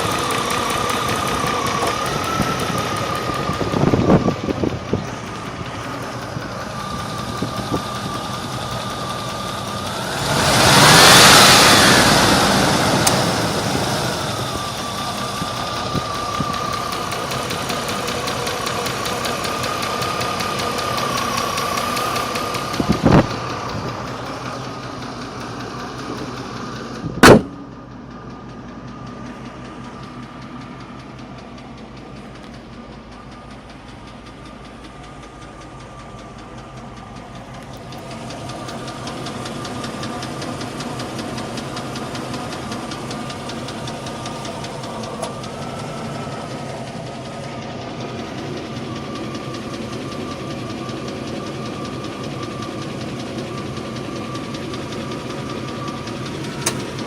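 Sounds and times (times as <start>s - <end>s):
engine running with regular tick: 0.0s - 57.0s
loud thump: 27.2s - 27.6s.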